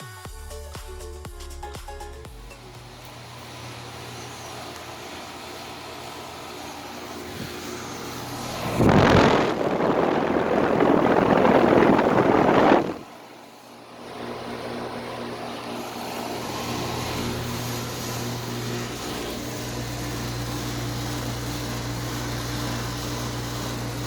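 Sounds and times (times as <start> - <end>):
heat pump humming: 1.2 - 24.0
loud rushing noise: 7.3 - 13.2.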